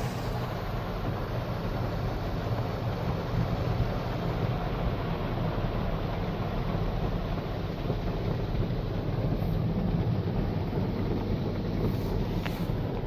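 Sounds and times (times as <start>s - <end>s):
car wash machinery rumble and hiss: 0.0s - 13.0s.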